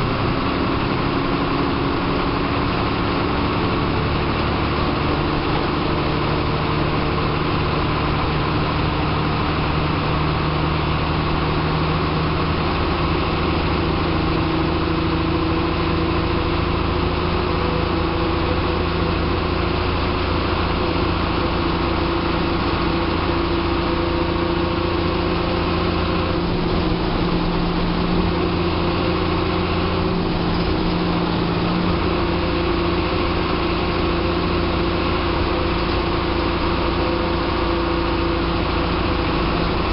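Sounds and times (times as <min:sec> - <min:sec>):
bus diesel engine droning: 0:00.0 - 0:39.9.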